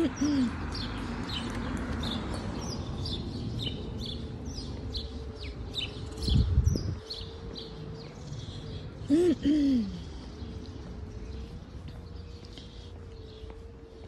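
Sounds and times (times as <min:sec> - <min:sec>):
songbird chirping: 0:00.1 - 0:14.0
steady low rumble: 0:01.8 - 0:09.3.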